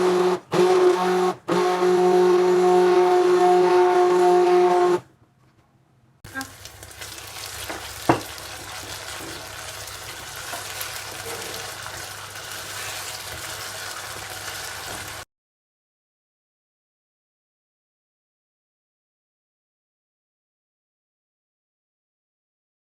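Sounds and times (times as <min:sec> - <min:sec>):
food sizzling in a pan: 0:06.3 - 0:15.3
utensil knocking against pan: 0:07.7 - 0:09.4.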